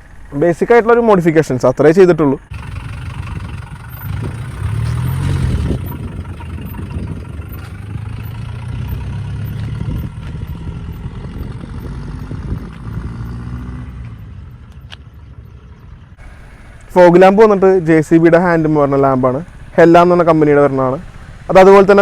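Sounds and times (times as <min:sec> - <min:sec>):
car engine idling: 0:00.0 - 0:11.0, 0:16.0 - 0:22.0.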